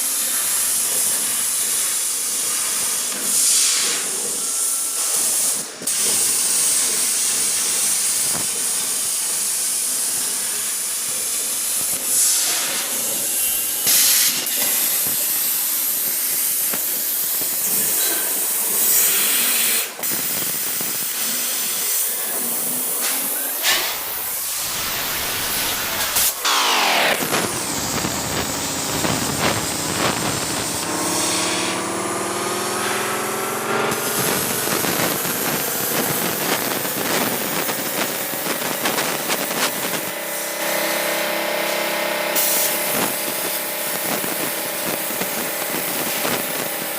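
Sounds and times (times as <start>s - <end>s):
steady hissing noise: 0.0s - 31.8s
sweeping rising and falling tones: 24.0s - 35.3s.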